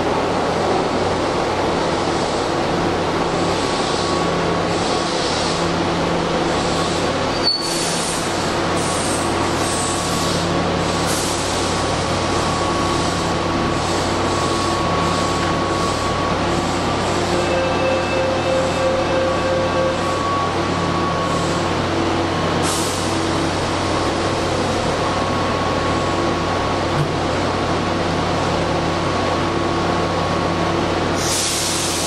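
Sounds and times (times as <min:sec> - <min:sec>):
train steady hum: 0:00.0 - 0:32.0
train braking to a stop: 0:06.6 - 0:26.8, 0:31.1 - 0:32.0
short hisses of air: 0:31.2 - 0:32.0.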